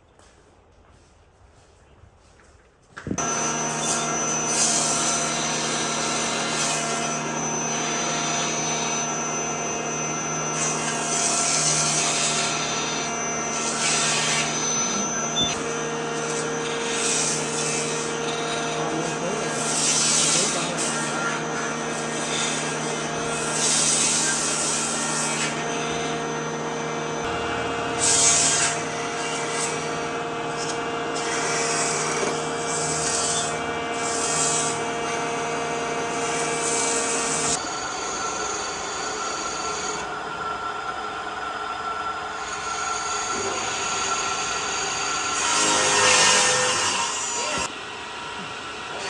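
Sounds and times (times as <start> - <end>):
power tool working wood: 3.1 - 49.0
rasping bursts of tool on wood: 3.2 - 15.4, 16.2 - 26.6, 27.2 - 35.5.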